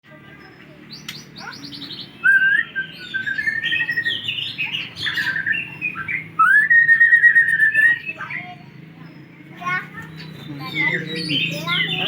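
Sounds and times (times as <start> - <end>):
bird singing whistles: 1.0 - 8.5.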